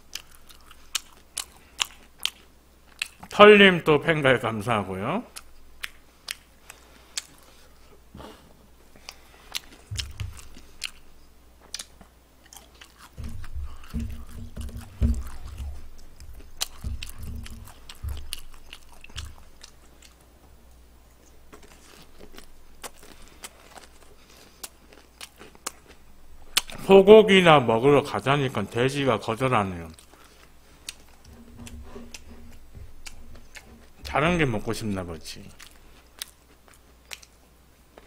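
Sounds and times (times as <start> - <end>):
man chewing and crunching food: 0.0 - 3.4, 5.2 - 26.9, 29.8 - 38.0
dull low thuds: 9.8 - 10.7, 13.2 - 19.4, 31.1 - 34.5.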